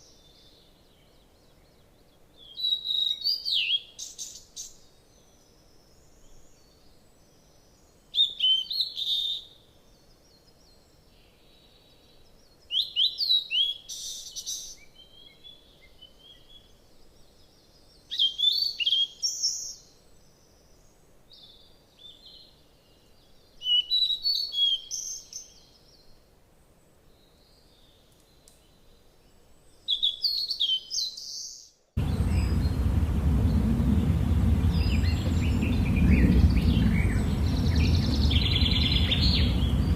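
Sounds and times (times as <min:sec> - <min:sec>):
wild birds chirping: 0:00.0 - 0:39.9
loud low steady noise: 0:32.0 - 0:39.9.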